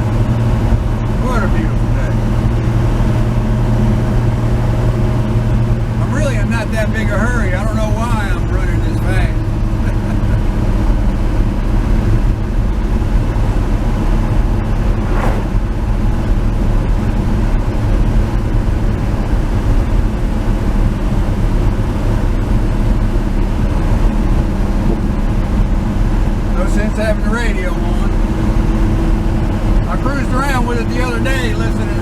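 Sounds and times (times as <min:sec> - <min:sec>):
road noise: 0:12.3 - 0:16.8.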